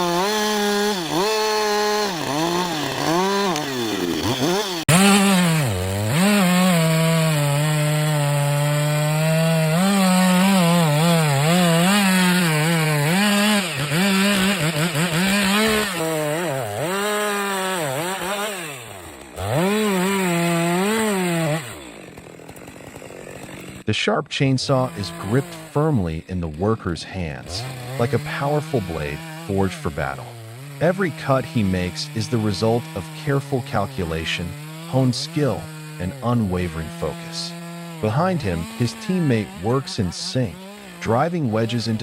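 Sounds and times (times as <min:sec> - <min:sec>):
chainsaw cutting log: 0:00.0 - 0:42.0.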